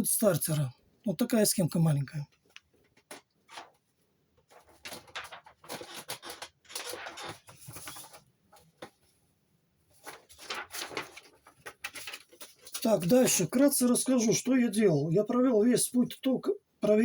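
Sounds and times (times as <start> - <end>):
paper rustling and scratching: 2.8 - 9.2, 9.9 - 14.6.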